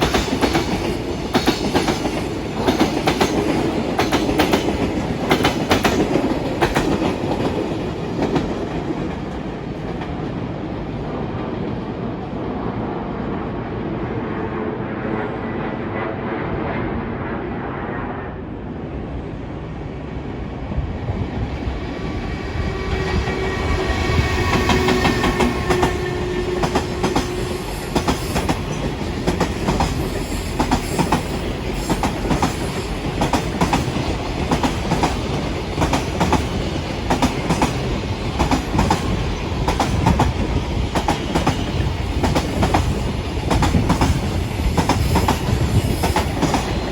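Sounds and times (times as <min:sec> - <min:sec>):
train wheels clickety-clack: 0:00.0 - 0:11.1, 0:22.0 - 0:46.9
electric train whine: 0:00.0 - 0:46.9.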